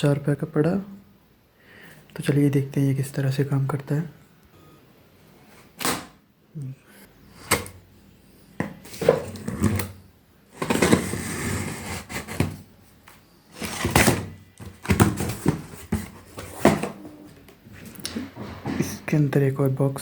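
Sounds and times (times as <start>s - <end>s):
cardboard rasping: 10.6s - 12.6s.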